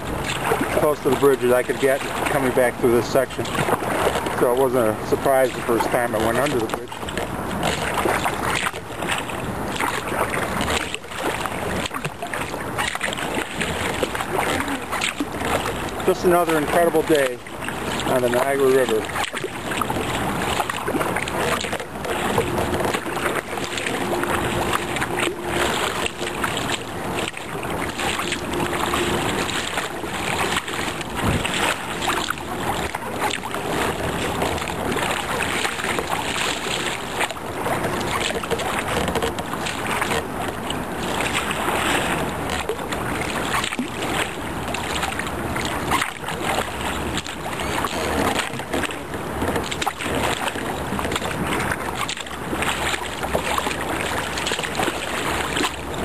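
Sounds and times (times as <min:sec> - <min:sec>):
wind buffeting microphone: 0:00.0 - 0:35.4
river rushing and splashing: 0:00.0 - 0:56.0.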